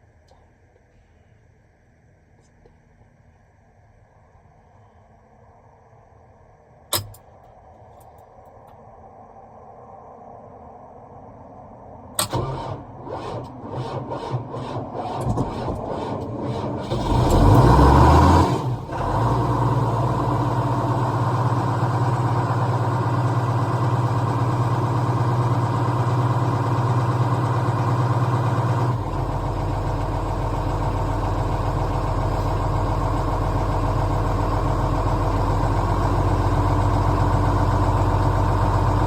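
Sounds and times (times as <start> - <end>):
tractor engine running: 12.2 - 39.0.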